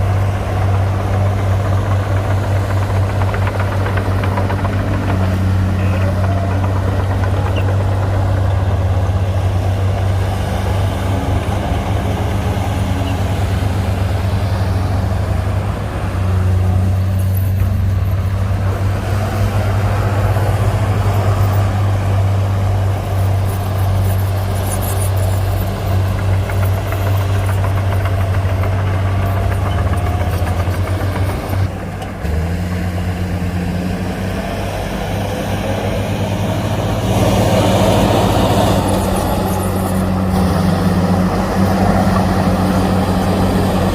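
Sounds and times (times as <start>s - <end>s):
heavy diesel engine droning: 0.0s - 43.9s.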